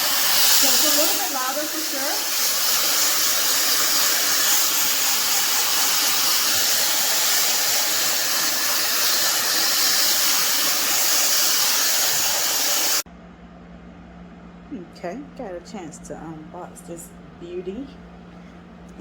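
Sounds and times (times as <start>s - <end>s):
hair dryer blowing air: 0.0s - 13.0s.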